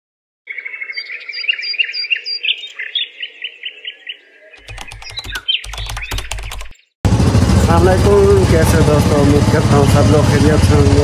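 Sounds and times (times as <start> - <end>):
birds chirping: 0.4 - 7.0
rapid sharp clicks: 4.6 - 6.8.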